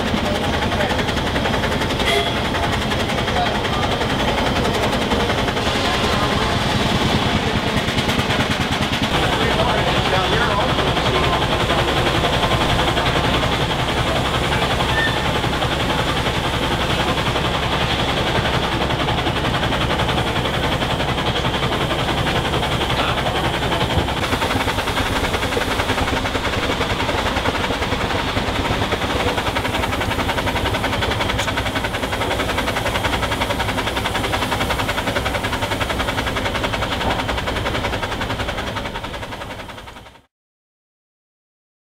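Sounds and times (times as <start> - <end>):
steam engine mechanical clatter: 0.0 - 40.3.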